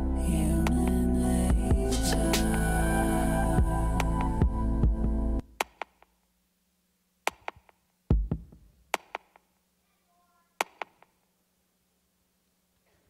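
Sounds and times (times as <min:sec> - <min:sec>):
faint steady hum: 0:00.0 - 0:08.9, 0:09.5 - 0:13.0
deep boom: 0:01.5 - 0:02.3
drum machine hits: 0:01.5 - 0:02.6, 0:07.3 - 0:09.3.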